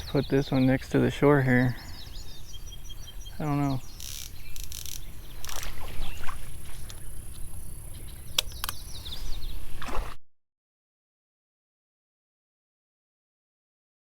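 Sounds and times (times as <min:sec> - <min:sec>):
water splashing: 0:04.7 - 0:07.7, 0:09.6 - 0:10.2.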